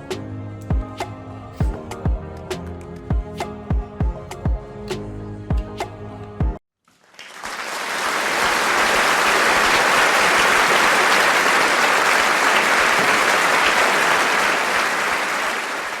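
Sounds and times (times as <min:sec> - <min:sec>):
applause: 0:06.9 - 0:16.0.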